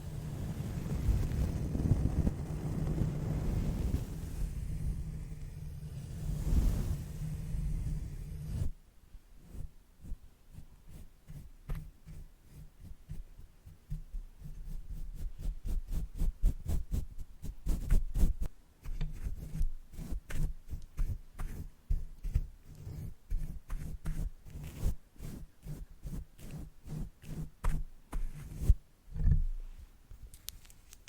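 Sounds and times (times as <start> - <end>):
brushes tapping on a microphone: 9.5 - 29.5.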